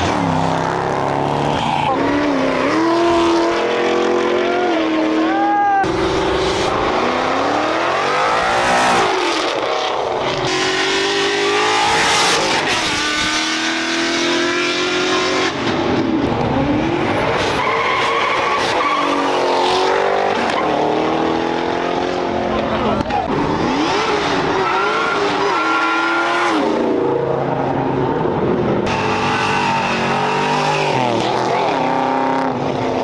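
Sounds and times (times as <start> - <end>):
car engine revving hard: 23.3 - 27.0.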